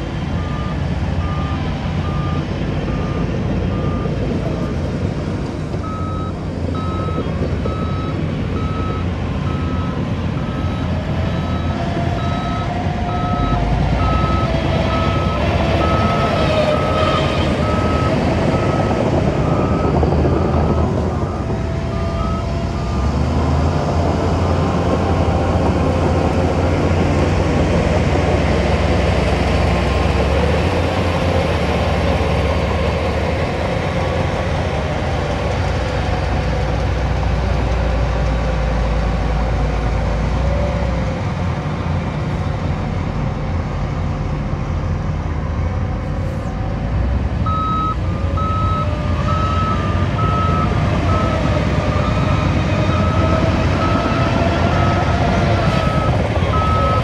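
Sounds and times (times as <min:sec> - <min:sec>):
diesel engine running: 0:00.0 - 0:57.0
reversing alarm beeping: 0:05.8 - 0:23.3, 0:47.4 - 0:57.0.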